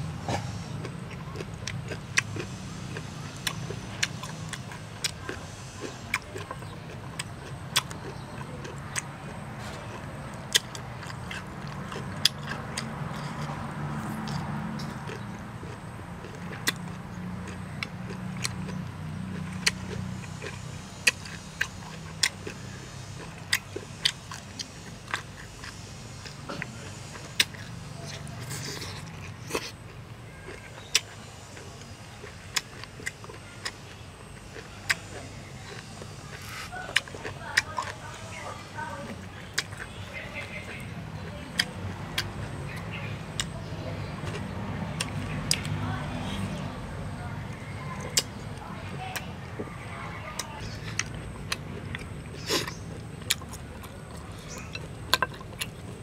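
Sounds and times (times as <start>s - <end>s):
man chewing greens: 0.0s - 56.0s
steady low hum: 0.0s - 56.0s
breathy puff: 0.2s - 0.8s
mouth smacks: 50.4s - 56.0s.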